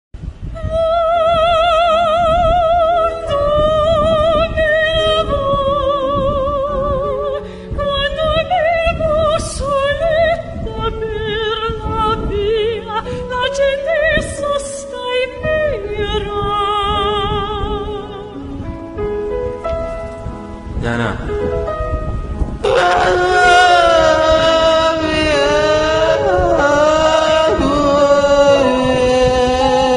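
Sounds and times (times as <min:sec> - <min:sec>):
person singing operatically: 0:22.6 - 0:29.9.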